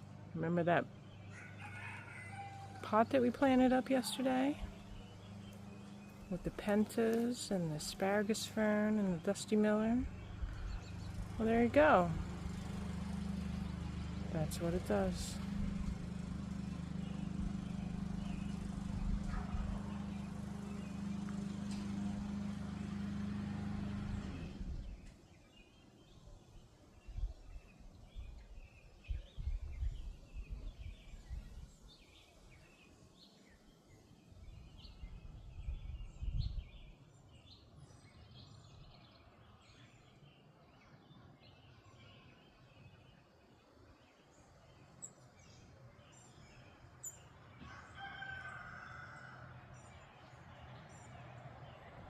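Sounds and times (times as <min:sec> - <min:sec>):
mechanical motor hum: 0:00.0 - 0:25.3
birds chirping: 0:00.0 - 0:30.0.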